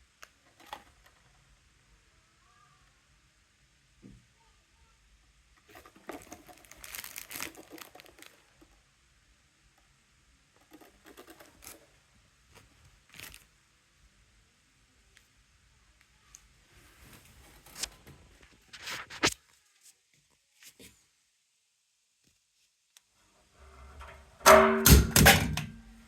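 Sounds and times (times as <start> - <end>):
crinkling and rustling: 5.6 - 8.9, 10.5 - 13.6, 16.3 - 21.1.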